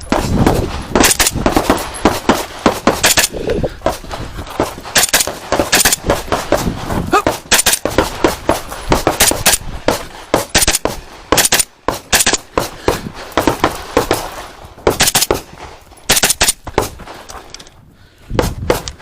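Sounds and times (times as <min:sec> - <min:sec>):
carbine gunshots: 0:00.1 - 0:03.4, 0:04.8 - 0:06.6, 0:07.2 - 0:09.6, 0:10.3 - 0:12.6, 0:14.9 - 0:15.5, 0:16.1 - 0:16.9.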